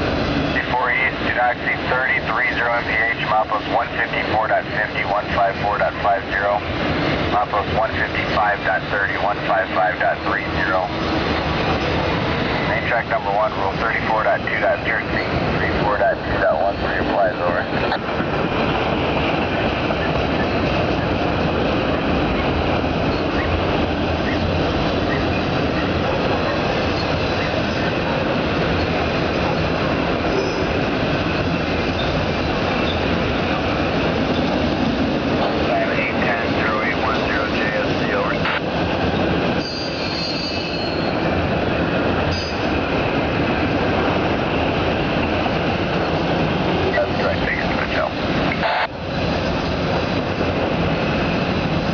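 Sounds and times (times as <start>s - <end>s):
freight cars rumbling and rattling: 0.0s - 51.9s
high wheel squeal: 23.1s - 23.6s, 30.3s - 30.8s, 31.4s - 32.2s, 32.8s - 33.1s, 39.6s - 41.3s, 42.3s - 42.8s.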